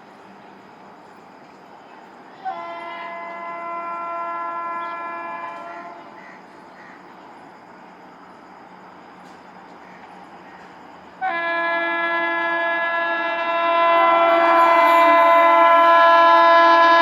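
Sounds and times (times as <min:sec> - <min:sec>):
train horn blast: 0:02.4 - 0:06.2, 0:11.2 - 0:17.0.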